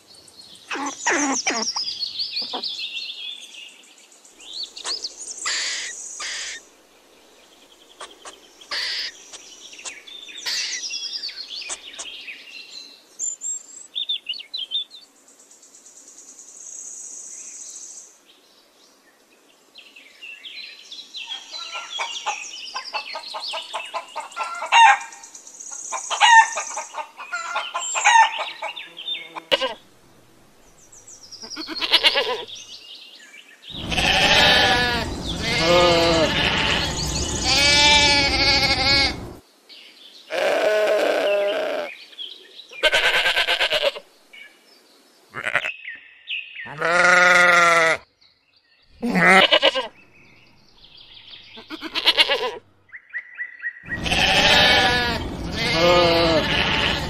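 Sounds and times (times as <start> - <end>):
bird-like chirping calls: 0.7 - 2.6, 4.8 - 6.6, 8.0 - 10.8
rapid clucking calls: 2.4 - 2.6, 4.8 - 6.6, 8.0 - 10.8, 21.7 - 24.9, 33.8 - 39.4, 53.9 - 57.0.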